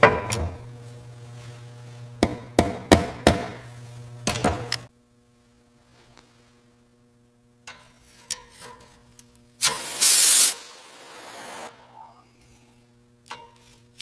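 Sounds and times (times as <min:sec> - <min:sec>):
low machine hum: 0:00.0 - 0:09.6, 0:10.7 - 0:14.0
air tool spraying hiss: 0:09.6 - 0:11.7.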